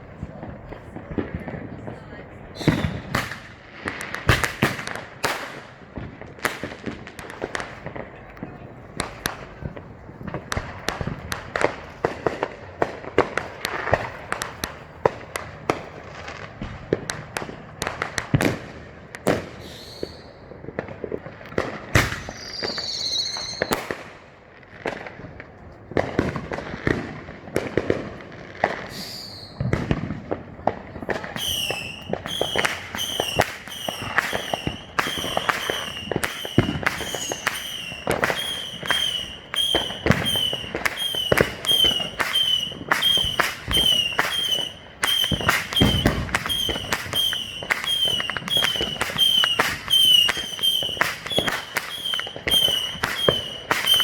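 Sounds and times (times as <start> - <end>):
fireworks bangs and crackling: 0.0 - 54.0
fireworks whistling: 2.5 - 8.1, 19.2 - 20.6, 21.6 - 24.1, 28.7 - 30.2, 31.0 - 54.0
rapid high chirping whistle: 22.3 - 23.7, 31.4 - 54.0.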